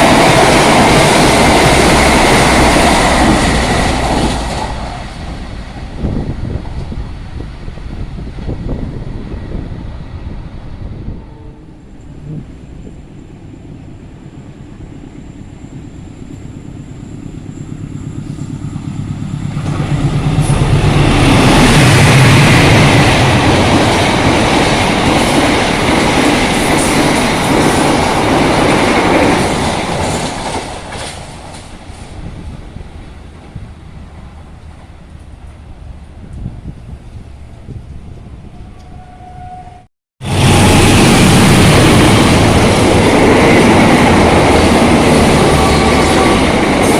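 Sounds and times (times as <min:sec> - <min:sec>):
fast train passing: 0:00.0 - 0:46.9
train wheel clatter: 0:17.6 - 0:32.1.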